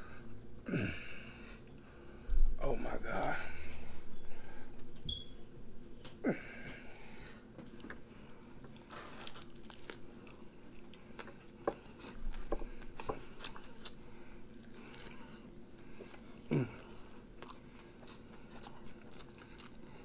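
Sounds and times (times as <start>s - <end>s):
person biting and chewing: 8.8s - 14.0s, 17.4s - 19.8s.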